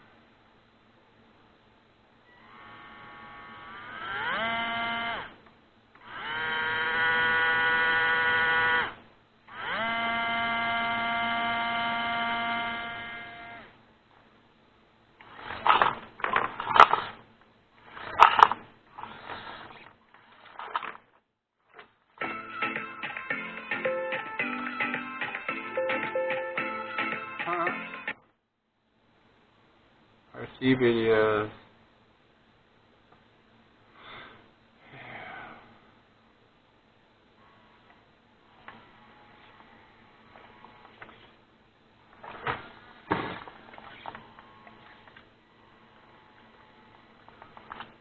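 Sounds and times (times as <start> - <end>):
electric motor and gears whining: 2.3 - 5.4, 6.0 - 13.8, 42.2 - 47.9.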